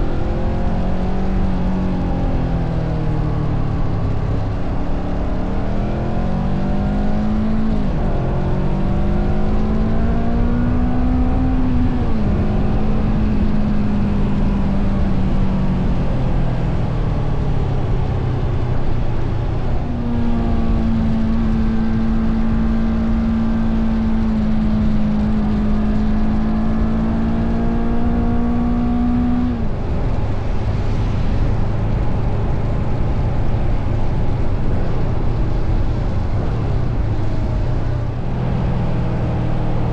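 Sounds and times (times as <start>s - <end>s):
motorcycle engine revving: 19.8s - 39.9s
steady low rush: 29.5s - 39.3s.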